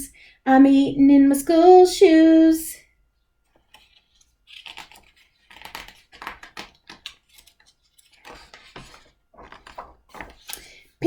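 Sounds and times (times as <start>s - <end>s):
paper rustle: 3.5s - 11.0s.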